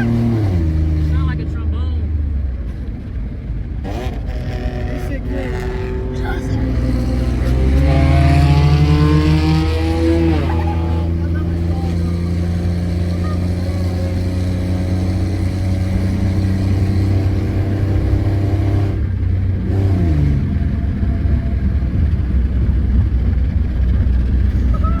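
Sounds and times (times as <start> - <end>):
car engine running: 0.0 - 25.0.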